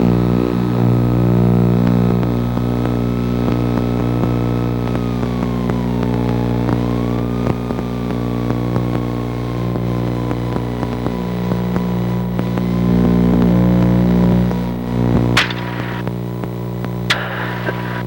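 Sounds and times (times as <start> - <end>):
aircraft engines droning in cabin: 0.0 - 18.0
short sharp noise: 15.4 - 16.1, 17.1 - 18.0.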